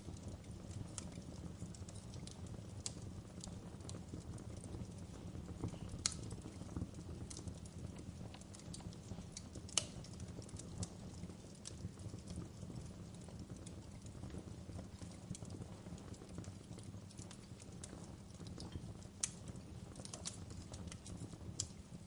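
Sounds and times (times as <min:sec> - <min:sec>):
loud fire pops: 0:00.0 - 0:22.0
wood fire crackling: 0:00.0 - 0:22.0.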